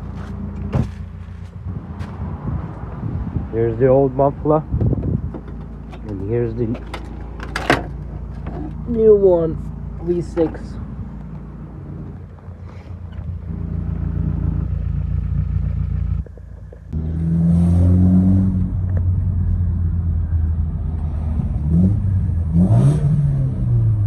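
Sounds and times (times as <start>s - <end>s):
car engine revving: 5.0s - 24.0s.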